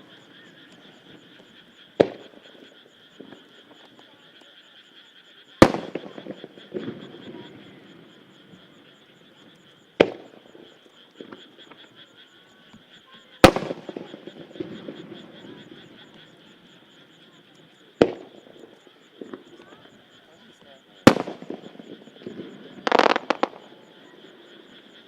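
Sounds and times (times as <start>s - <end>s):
frogs chorusing: 0.0s - 25.0s
firework shells booming: 2.0s - 2.4s, 5.6s - 7.4s, 10.0s - 11.4s, 13.4s - 15.7s, 18.0s - 19.5s, 21.0s - 24.0s
rolling echo: 21.0s - 24.0s.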